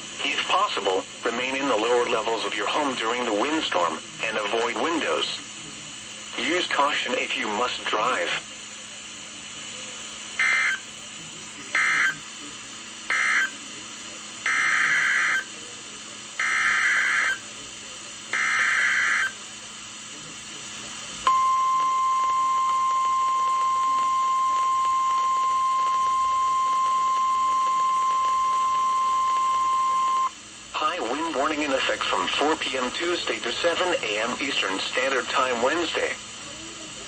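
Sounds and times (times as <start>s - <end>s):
radio hiss: 0.0s - 37.0s.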